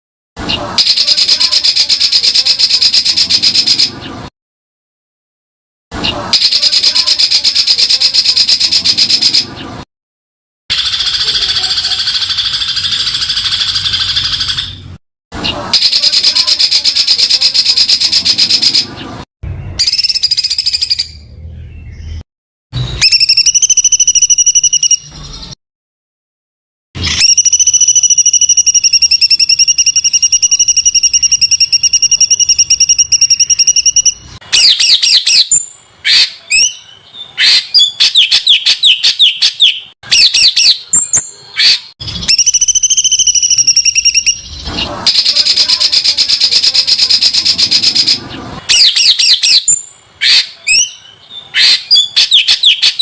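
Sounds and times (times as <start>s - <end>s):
fast whistled bird notes: 19.8s - 21.3s, 22.8s - 25.6s, 27.0s - 53.0s.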